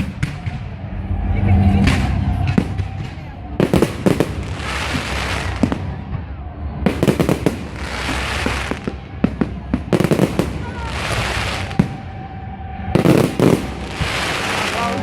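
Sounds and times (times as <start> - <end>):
fireworks banging: 0.0 - 0.9, 1.7 - 12.1, 12.9 - 15.0
fireworks hissing: 3.6 - 5.9, 7.0 - 9.0, 9.9 - 12.0, 13.0 - 15.0.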